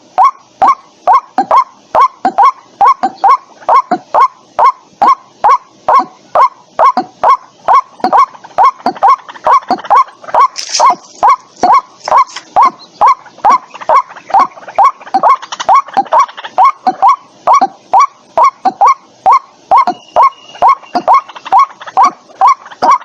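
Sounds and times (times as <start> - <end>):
waterhen calling: 0.0 - 23.0.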